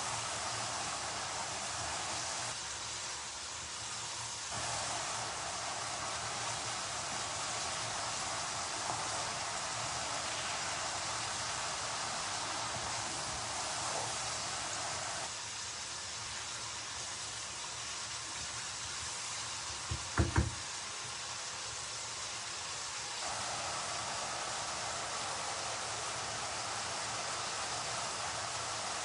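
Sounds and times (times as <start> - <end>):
food sizzling in a pan: 0.0 - 29.0
utensil knocking a pan: 19.9 - 20.6.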